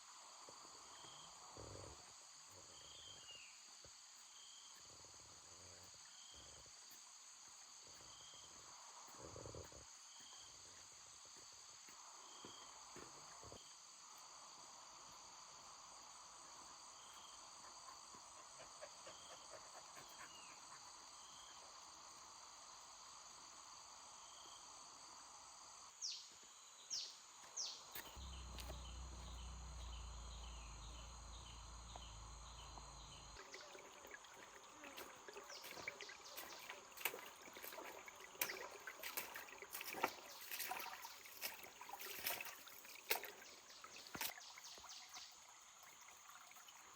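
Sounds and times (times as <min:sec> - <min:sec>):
crickets chirping: 0:00.0 - 0:46.9
low rumble: 0:28.1 - 0:33.4.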